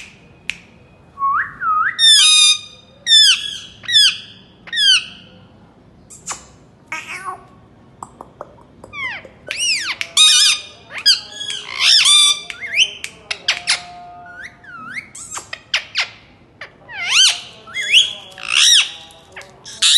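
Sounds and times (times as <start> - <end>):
parakeet squawking: 2.0 - 5.4, 8.9 - 19.9.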